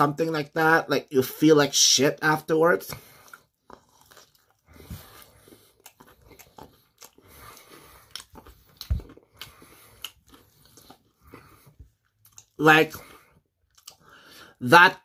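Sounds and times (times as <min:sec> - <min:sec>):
crunchy chewing: 0:02.9 - 0:14.2.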